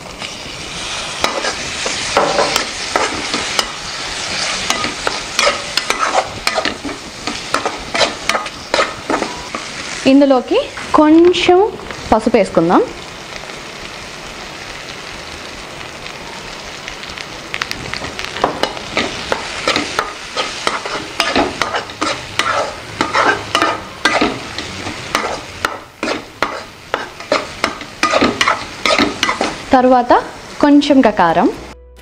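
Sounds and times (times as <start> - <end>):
vegetables sizzling in oil: 0.0 - 31.8
metal spatula scraping pan: 1.0 - 10.0, 18.6 - 29.6.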